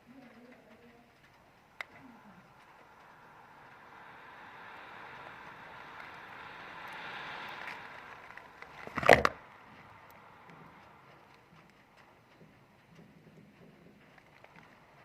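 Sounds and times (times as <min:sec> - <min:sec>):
rushing noise: 0:01.3 - 0:12.0
hard object banging: 0:08.9 - 0:09.4.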